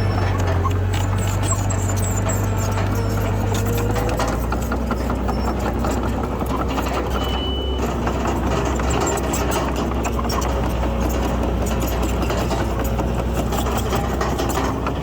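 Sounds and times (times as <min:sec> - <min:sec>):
diesel engine with metallic clatter: 0:00.0 - 0:15.0
short high beep: 0:07.2 - 0:07.8.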